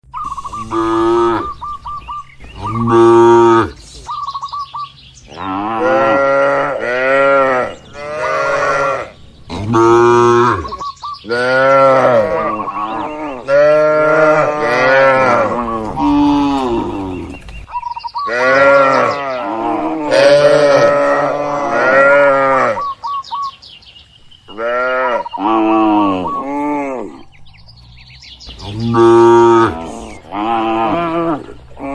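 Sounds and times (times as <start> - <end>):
cattle mooing: 0.5 - 1.6, 2.6 - 3.8, 5.3 - 17.4, 18.3 - 22.9, 28.6 - 31.9.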